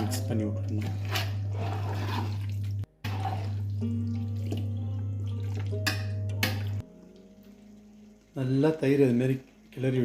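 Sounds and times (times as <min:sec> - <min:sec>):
wet sloshing stirring in pot: 0:00.0 - 0:08.1
mild background music: 0:00.0 - 0:10.0.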